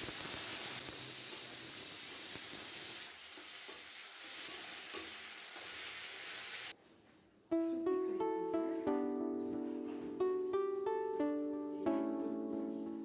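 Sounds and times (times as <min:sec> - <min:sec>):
steady loud hiss: 0:00.0 - 0:06.7.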